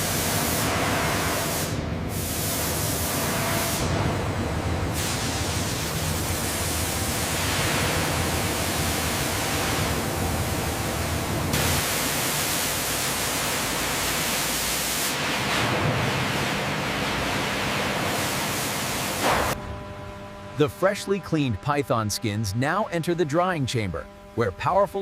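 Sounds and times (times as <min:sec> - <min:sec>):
loud spray hissing: 0:04.9 - 0:15.2.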